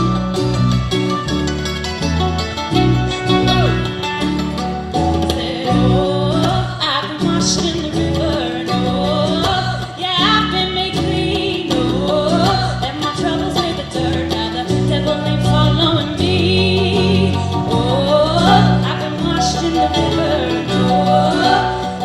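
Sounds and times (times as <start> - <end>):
acoustic guitar chords: 0.0 - 22.0
person singing: 5.3 - 22.0.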